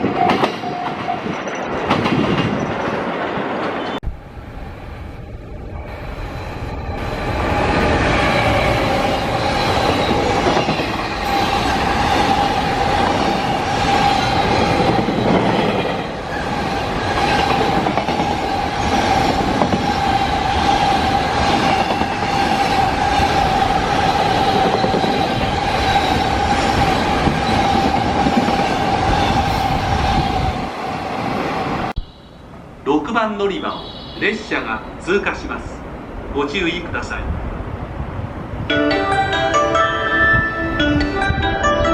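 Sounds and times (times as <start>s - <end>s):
high-pitched rail squeal: 0.0s - 1.8s, 4.9s - 30.7s, 32.0s - 32.5s
freight train wagons rumbling: 0.0s - 38.7s.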